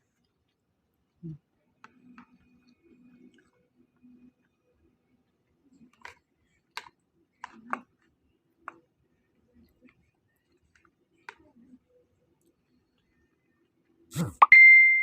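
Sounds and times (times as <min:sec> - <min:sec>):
soft mouth noises: 0:00.1 - 0:01.5, 0:14.1 - 0:14.5.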